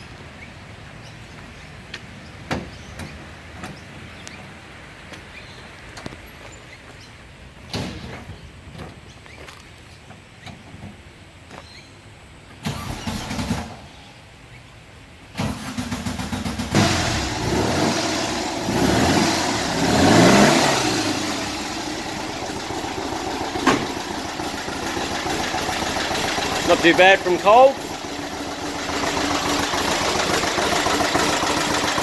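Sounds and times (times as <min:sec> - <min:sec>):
engine cranking: 0:12.6 - 0:13.8, 0:15.4 - 0:32.0
engine revving and idling: 0:15.4 - 0:32.0.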